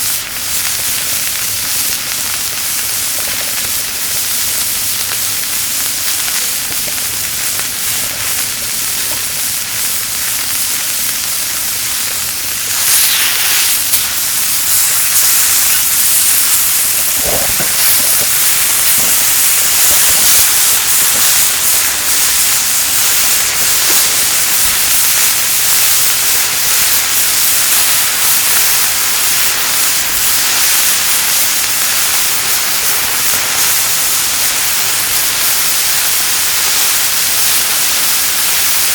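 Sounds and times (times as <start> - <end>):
meat sizzling on a grill: 0.0 - 38.9.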